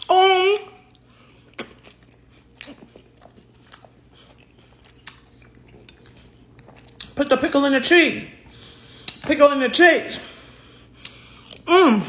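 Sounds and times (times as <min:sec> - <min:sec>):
person chewing food: 0:00.0 - 0:07.2, 0:08.4 - 0:09.3, 0:10.6 - 0:11.7.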